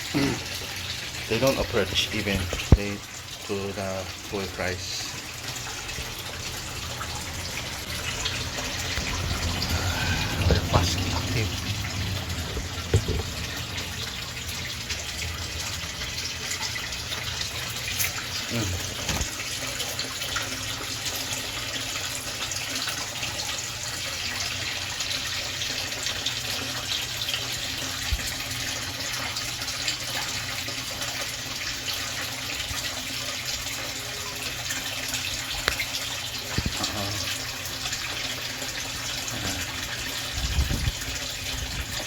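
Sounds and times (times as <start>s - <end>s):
running splashing water: 0.0s - 42.0s
low thumps: 8.9s - 14.8s.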